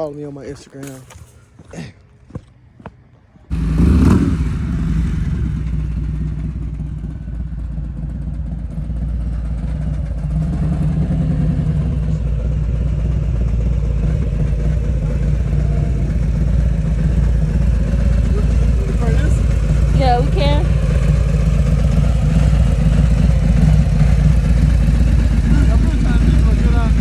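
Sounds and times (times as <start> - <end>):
motorcycle engine running: 3.5 - 27.0.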